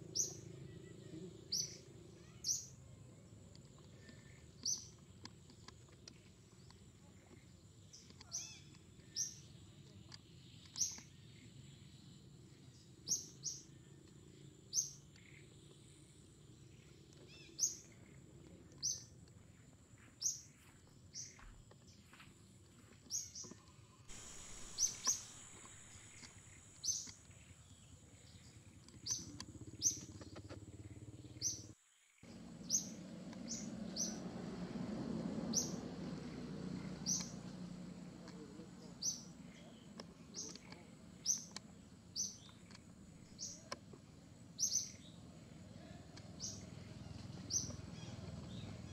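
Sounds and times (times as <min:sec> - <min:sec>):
bird chirping: 0:00.0 - 0:22.2, 0:22.8 - 0:48.9
steady high whine: 0:24.1 - 0:28.8.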